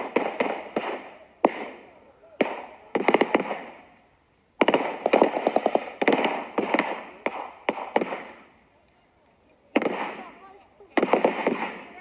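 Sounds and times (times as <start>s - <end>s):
blank gunshots with echo: 0.0s - 3.8s, 4.6s - 8.5s, 9.7s - 12.0s
automatic gunfire burst: 4.6s - 8.4s, 9.8s - 10.4s, 11.0s - 12.0s.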